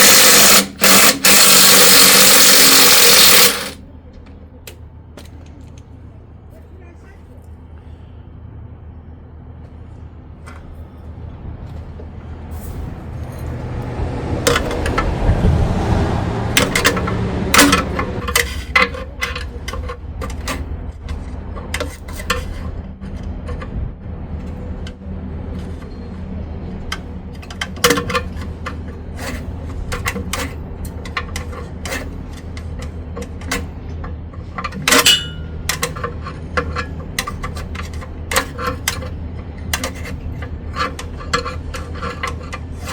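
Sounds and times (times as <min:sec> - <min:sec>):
rushing noise: 0:12.4 - 0:18.4
sharp metallic knocks: 0:34.8 - 0:36.0
metal hand tools clinking: 0:34.8 - 0:37.7.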